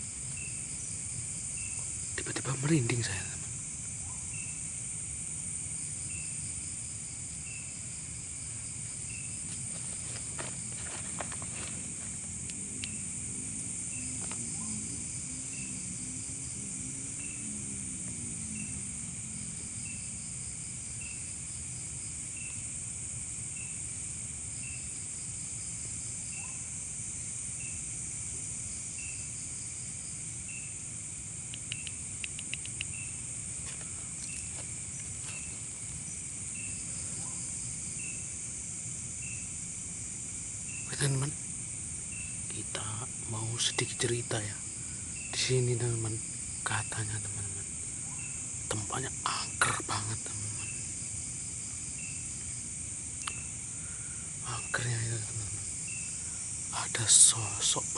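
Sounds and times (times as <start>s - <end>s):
crickets buzzing: 0.0s - 57.9s
short insect chirp: 0.0s - 57.9s
light clicks: 31.5s - 33.0s.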